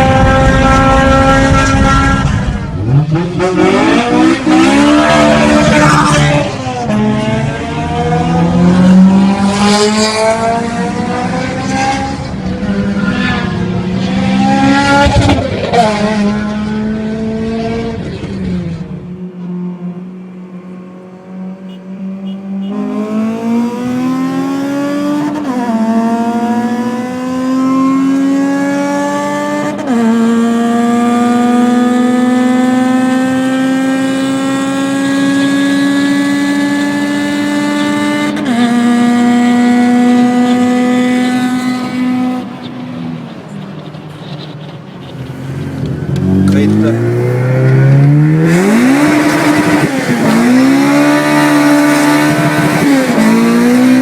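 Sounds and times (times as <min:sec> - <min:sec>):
engine revving: 0:00.0 - 0:19.0, 0:22.4 - 0:42.7, 0:45.1 - 0:54.0
engine accelerating through gears: 0:45.2 - 0:54.0.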